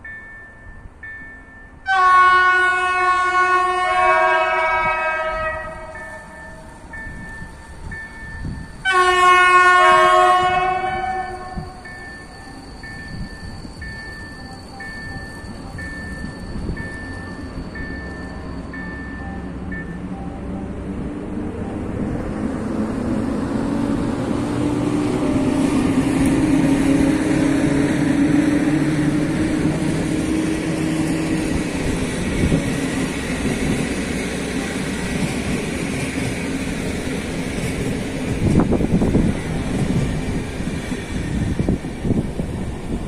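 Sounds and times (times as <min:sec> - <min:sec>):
train coaches rolling past: 0:00.0 - 0:43.0
wind buffeting microphone: 0:06.9 - 0:08.9, 0:21.1 - 0:43.0.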